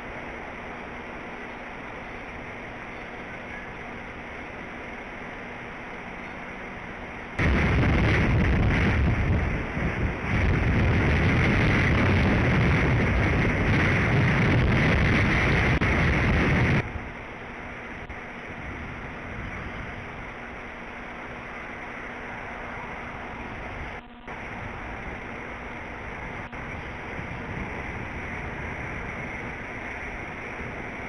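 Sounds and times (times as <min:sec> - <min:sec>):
steady wind hiss: 0:00.0 - 0:31.0
strong wind gusting on microphone: 0:07.4 - 0:17.2, 0:17.8 - 0:20.7, 0:22.6 - 0:31.0.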